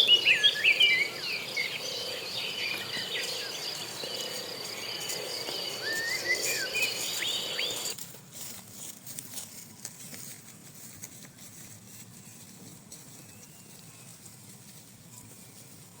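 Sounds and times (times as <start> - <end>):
birds chirping: 0.0 - 8.0
high-pitched insect drone: 0.0 - 8.0.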